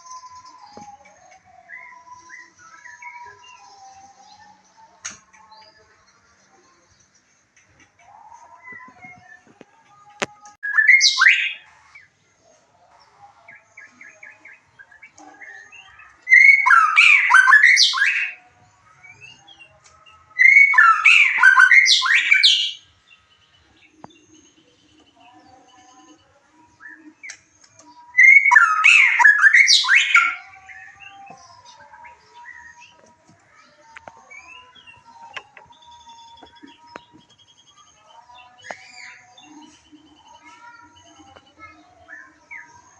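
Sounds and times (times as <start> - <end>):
bird singing song phrases: 0.0 - 42.9
soft bird chirps and whistles: 10.6 - 12.1, 13.8 - 18.5, 20.4 - 22.9, 23.8 - 42.9.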